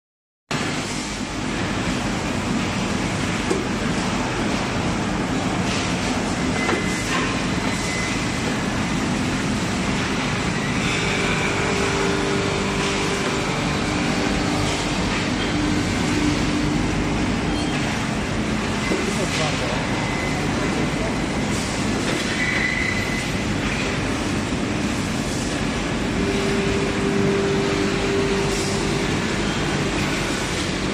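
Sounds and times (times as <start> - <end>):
grinding machine rumble and hum: 0.5 - 30.9
steady higher tone: 26.1 - 30.9.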